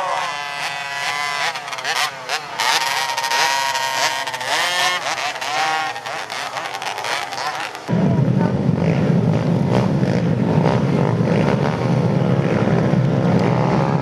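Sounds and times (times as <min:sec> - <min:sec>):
motorcycle racing engines: 0:00.0 - 0:14.0.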